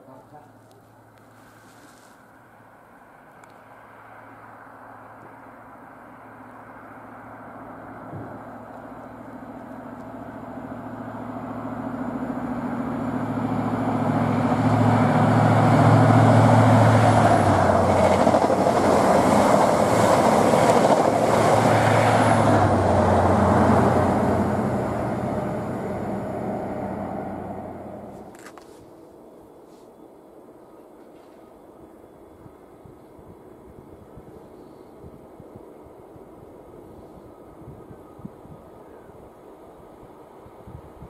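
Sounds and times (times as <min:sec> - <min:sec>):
diesel train engines droning: 0:00.0 - 0:41.0
wheels clattering on rails: 0:12.6 - 0:23.1.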